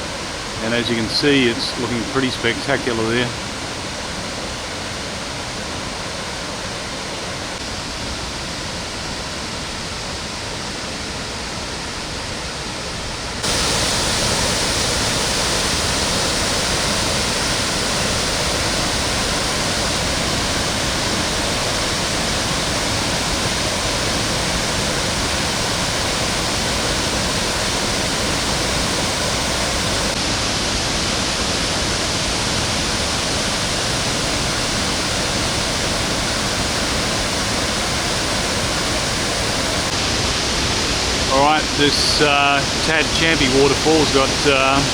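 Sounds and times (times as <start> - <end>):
waterfall rushing: 0.0 - 8.1, 13.4 - 44.9.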